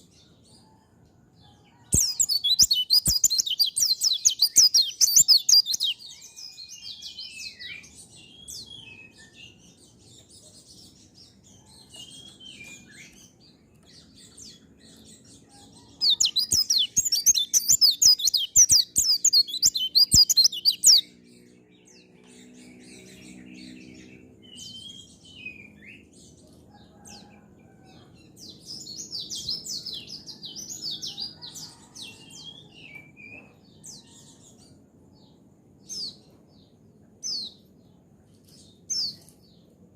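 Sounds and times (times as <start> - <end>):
bird twittering in bursts: 1.9 - 6.0, 16.0 - 21.2.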